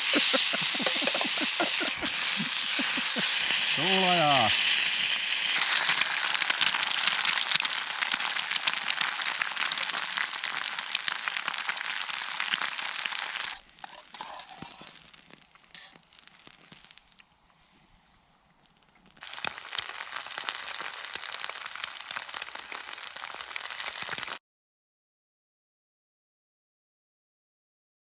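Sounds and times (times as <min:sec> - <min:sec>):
dense crackling: 0:00.0 - 0:17.4, 0:18.6 - 0:24.4.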